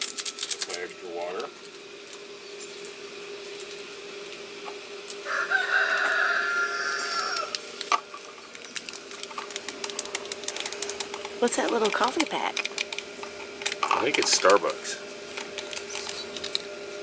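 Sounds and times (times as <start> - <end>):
stove fan humming: 0.0 - 17.0
rooster crowing: 5.2 - 7.6.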